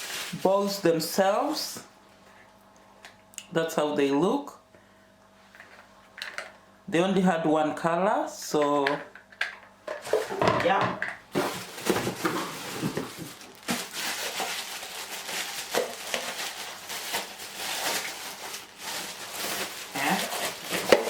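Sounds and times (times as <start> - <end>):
packaging crinkling: 0.0 - 0.8, 11.3 - 21.0
pots knocking and clattering: 9.4 - 13.8.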